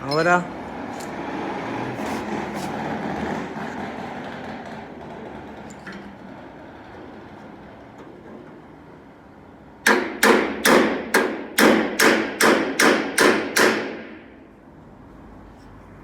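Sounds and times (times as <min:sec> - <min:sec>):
hammer striking sheet metal: 0:09.8 - 0:14.4.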